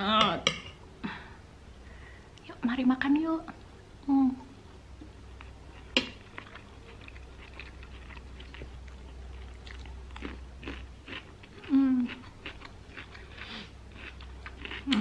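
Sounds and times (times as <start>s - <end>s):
person chewing food: 5.3s - 15.0s.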